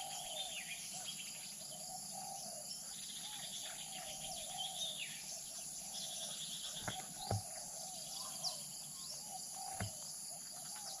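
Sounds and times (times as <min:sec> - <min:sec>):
bird chirping: 0:00.0 - 0:11.0
insects buzzing: 0:00.0 - 0:11.0.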